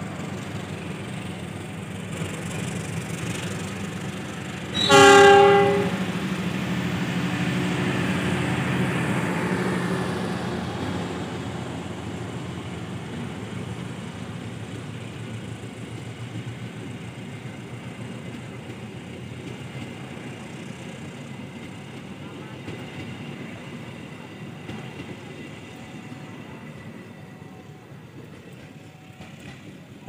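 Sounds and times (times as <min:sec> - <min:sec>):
diesel locomotive engine hum: 0:00.0 - 0:30.0
train wheels rolling on track: 0:00.0 - 0:30.0.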